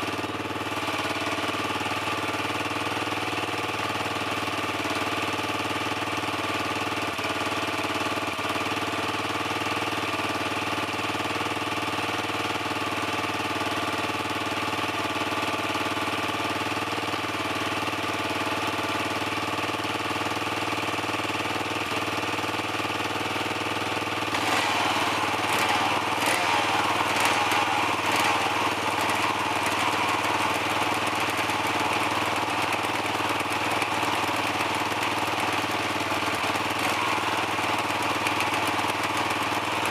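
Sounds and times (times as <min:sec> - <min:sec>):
dirt bike engine idling: 0:00.0 - 0:39.9
engine crackles: 0:23.5 - 0:39.9.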